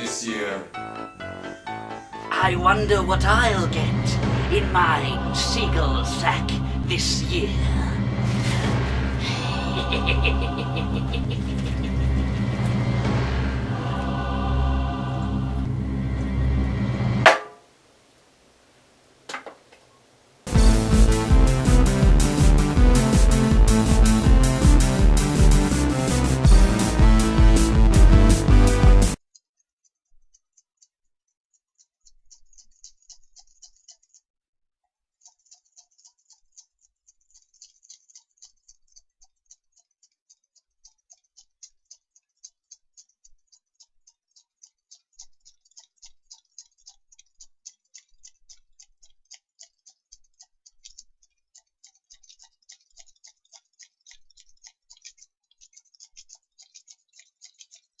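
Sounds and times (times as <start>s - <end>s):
faint rapid ticking: 20.2s - 30.9s, 31.5s - 34.3s, 35.2s - 58.0s.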